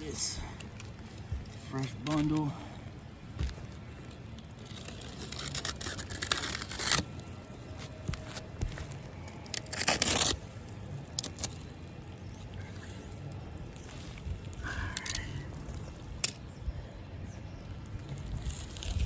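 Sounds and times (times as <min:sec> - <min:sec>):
wrapper ripping open: 0:04.5 - 0:11.7.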